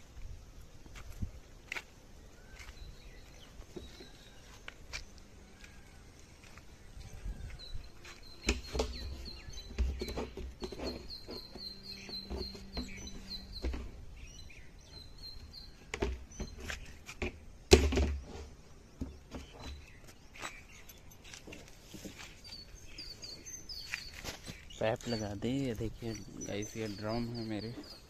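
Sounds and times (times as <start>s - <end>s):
small bird chirping: 2.2s - 17.1s, 19.0s - 28.0s.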